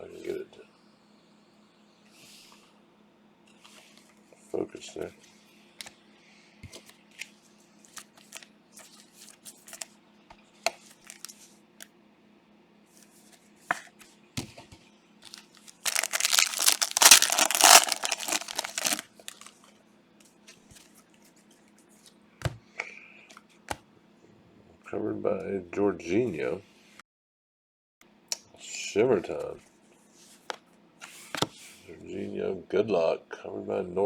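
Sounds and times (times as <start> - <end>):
foil pack tearing: 11.0 - 11.3, 15.3 - 19.5.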